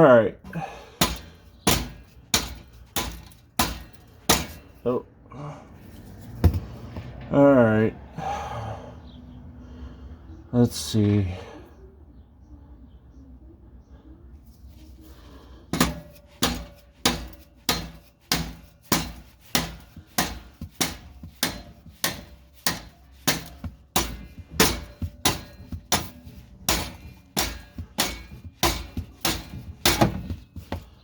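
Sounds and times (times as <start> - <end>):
hammer blows on metal: 15.7 - 31.0.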